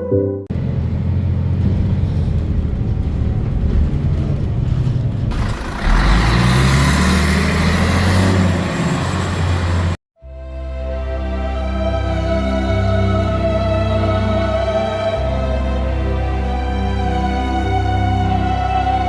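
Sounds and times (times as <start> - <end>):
rumbling vehicle noise: 0.5 - 10.0.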